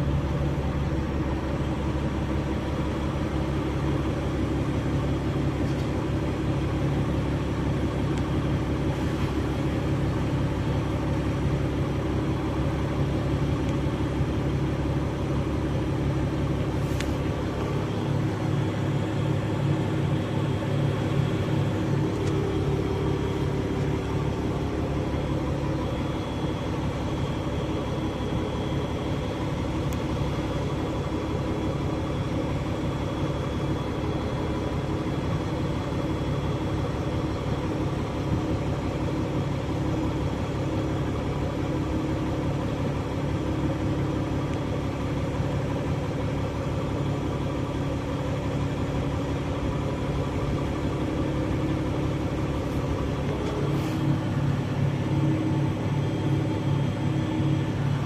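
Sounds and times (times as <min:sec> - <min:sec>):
bus engine droning: 0:00.0 - 0:58.0.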